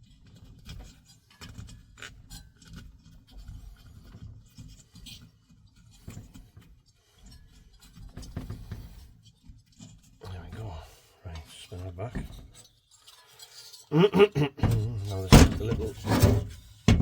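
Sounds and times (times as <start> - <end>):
scraping and rubbing: 14.5 - 17.0.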